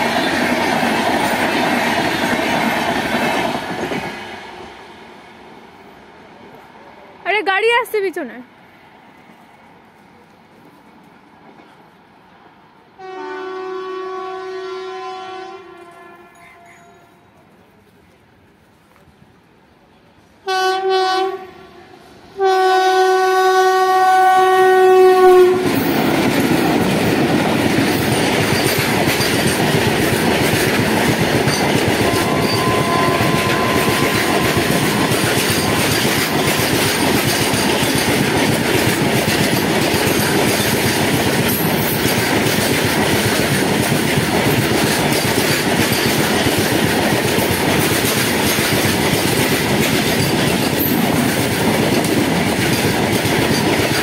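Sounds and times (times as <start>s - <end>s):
freight wheels on rail: 0.0s - 54.0s
locomotive horn: 13.0s - 17.2s, 20.4s - 25.9s, 32.0s - 36.7s.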